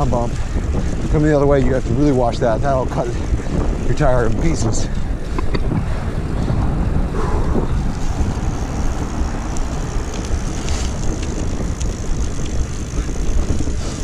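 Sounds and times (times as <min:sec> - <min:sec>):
bike tyres on pavement: 0:00.0 - 0:14.0
light ticks from bike: 0:00.0 - 0:14.0
wind rushing over microphone: 0:00.0 - 0:14.0.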